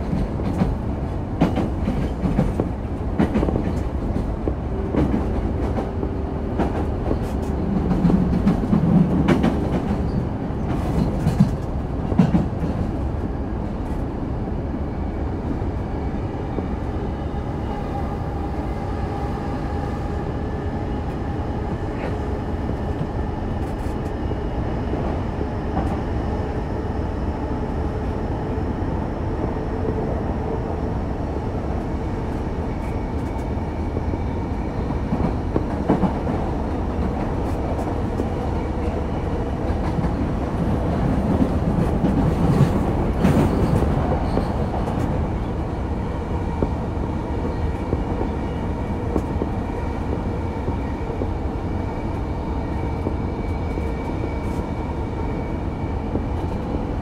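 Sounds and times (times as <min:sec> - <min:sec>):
rail clacks: 0:00.0 - 0:13.0, 0:32.8 - 0:45.7
train wheels rumbling on rail: 0:00.0 - 0:57.0.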